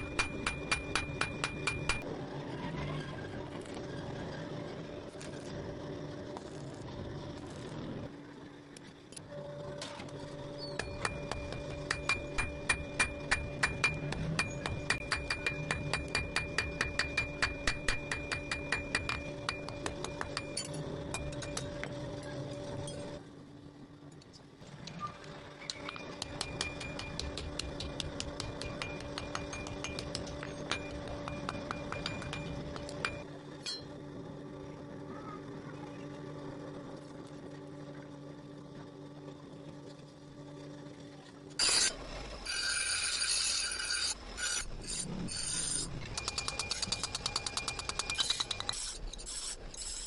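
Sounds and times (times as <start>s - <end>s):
hammer striking hot steel: 0.0s - 2.0s, 10.6s - 23.2s, 25.6s - 33.9s
background hum or music: 0.0s - 50.0s.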